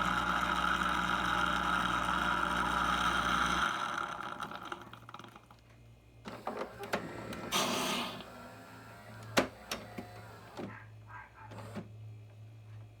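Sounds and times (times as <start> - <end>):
coffee machine humming: 0.0 - 5.6, 6.2 - 10.7.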